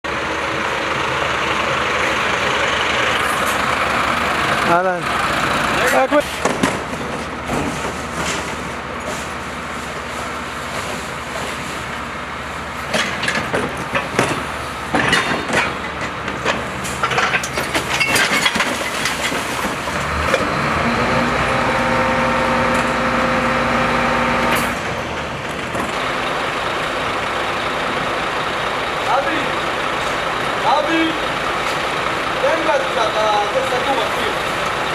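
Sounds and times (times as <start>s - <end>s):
diesel engine running: 0.0s - 34.9s
metal clanks and bangs: 12.9s - 20.4s.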